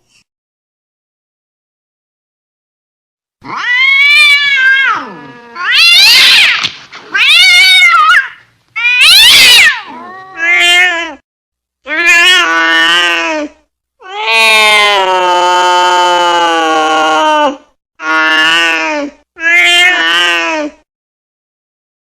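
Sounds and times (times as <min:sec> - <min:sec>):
cat yowling angrily: 0:03.4 - 0:11.2, 0:11.9 - 0:13.3, 0:14.0 - 0:18.8, 0:19.4 - 0:20.8.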